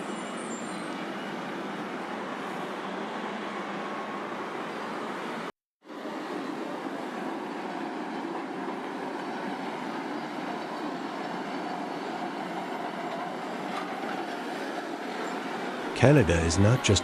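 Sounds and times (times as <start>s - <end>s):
steady ambient rushing noise: 15.9s - 17.0s.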